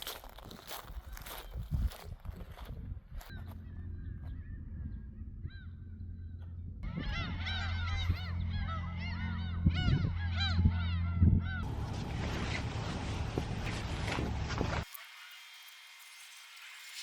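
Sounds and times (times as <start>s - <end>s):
steady low hum: 2.9s - 14.9s
flock of birds calling: 6.8s - 15.6s.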